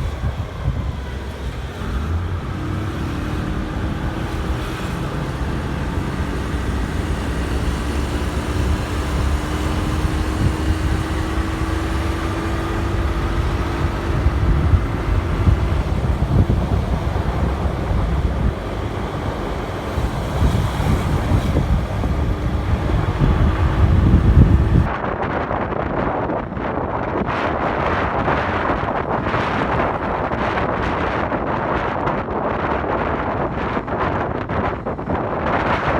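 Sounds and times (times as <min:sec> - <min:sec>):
wind buffeting microphone: 0:00.0 - 0:35.9
motorcycle engine running: 0:01.5 - 0:24.9.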